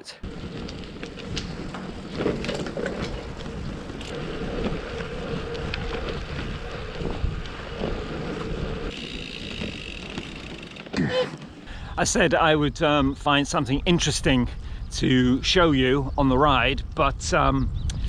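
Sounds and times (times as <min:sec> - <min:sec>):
wind on microphone: 0:00.2 - 0:09.0, 0:13.8 - 0:18.0
road noise: 0:00.2 - 0:11.8.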